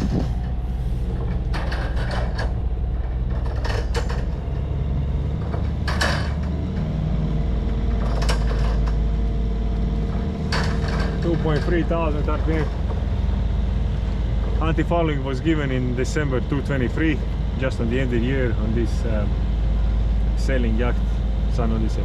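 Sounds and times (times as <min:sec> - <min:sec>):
marine diesel engine running: 0:00.0 - 0:22.0
short knocks and clatters: 0:01.2 - 0:04.7, 0:05.4 - 0:06.9, 0:07.9 - 0:09.1, 0:10.0 - 0:13.0.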